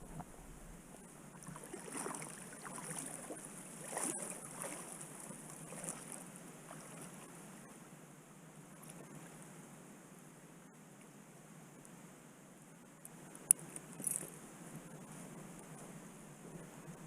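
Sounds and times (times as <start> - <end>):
flowing river water: 0.0 - 7.9.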